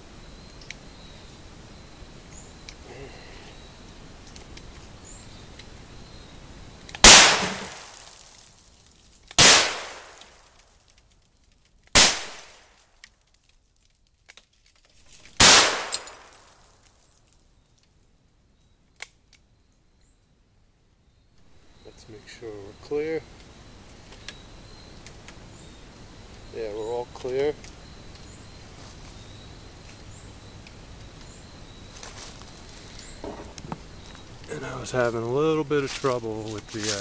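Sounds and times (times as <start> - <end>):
gunshots with ringing tail: 7.1 - 7.9, 9.4 - 10.2, 15.4 - 16.3.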